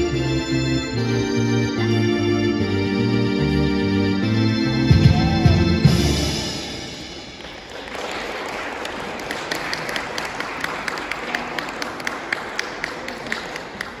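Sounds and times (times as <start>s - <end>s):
audience applauding: 7.3s - 14.0s
nearby hands clapping steadily: 7.4s - 14.0s.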